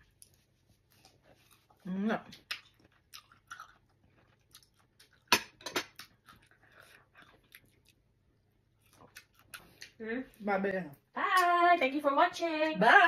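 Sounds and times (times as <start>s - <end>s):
person chewing wetly: 0.0s - 10.0s.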